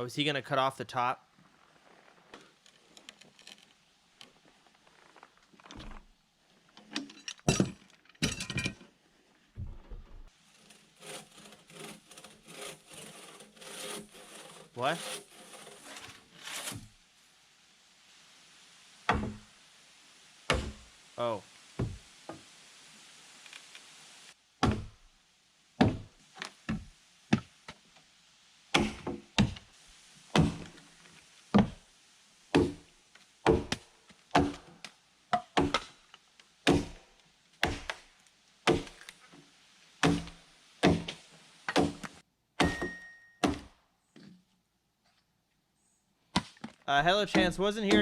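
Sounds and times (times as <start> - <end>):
hand tool striking log: 24.6 - 24.9, 33.5 - 33.8, 34.4 - 34.6, 35.4 - 35.9, 36.7 - 37.0, 40.0 - 41.1, 42.6 - 43.7, 47.3 - 48.0.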